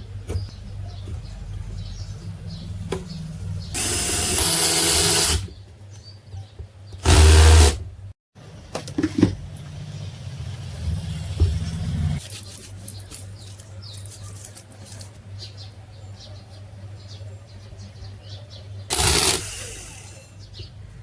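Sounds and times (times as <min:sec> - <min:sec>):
low electric motor hum: 0:01.4 - 0:05.5, 0:07.0 - 0:08.1
loud whirring burst: 0:03.8 - 0:05.5, 0:07.0 - 0:07.8, 0:18.9 - 0:20.3.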